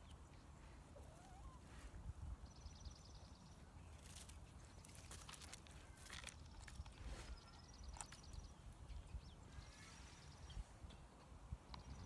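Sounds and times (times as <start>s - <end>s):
footsteps on stones and grass: 4.0s - 7.3s.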